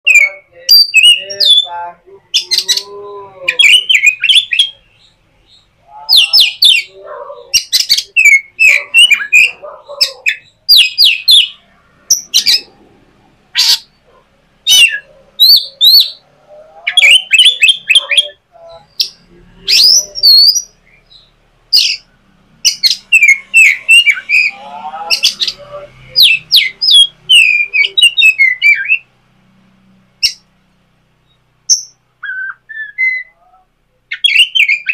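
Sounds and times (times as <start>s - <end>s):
bird warbling: 0.0s - 29.1s, 31.3s - 34.9s
bird chirping sharply: 3.5s - 12.8s, 13.5s - 14.0s, 14.6s - 16.2s, 16.9s - 29.1s, 31.2s - 33.4s, 34.1s - 34.9s.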